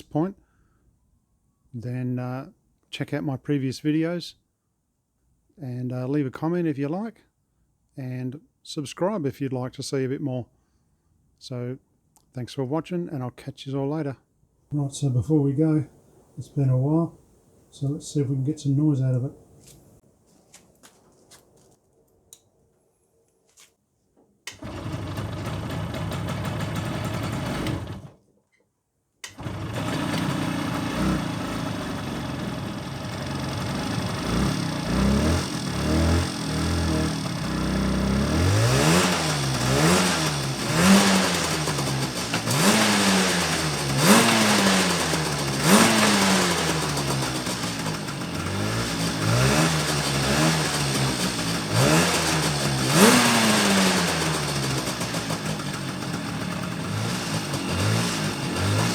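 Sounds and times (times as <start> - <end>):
two-stroke motorcycle engine revving: 24.5 - 28.1, 29.3 - 58.9.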